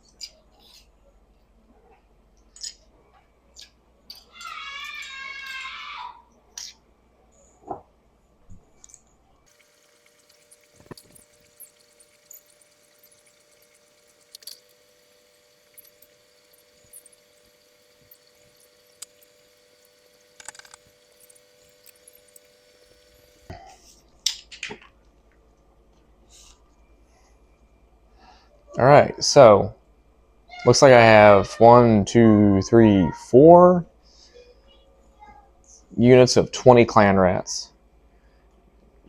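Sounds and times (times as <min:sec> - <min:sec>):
faint steady hum: 0:00.0 - 0:39.0
miniatures clicking and tapping: 0:08.8 - 0:23.5.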